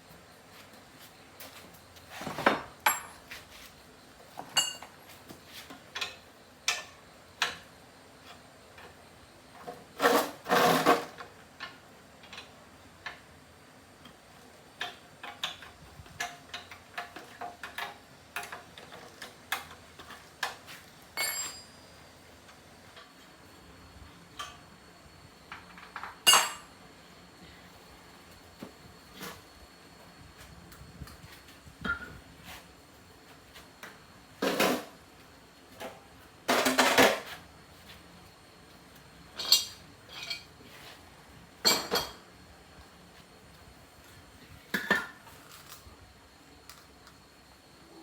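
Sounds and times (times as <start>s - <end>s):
metal tools clinking: 21.2s - 21.8s.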